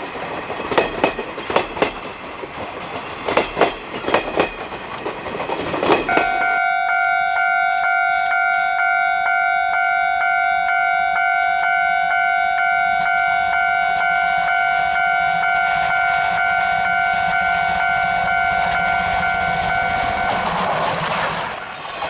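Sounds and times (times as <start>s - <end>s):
passing train hiss and rumble: 0.0s - 22.0s
steam locomotive whistle blast: 6.1s - 21.6s.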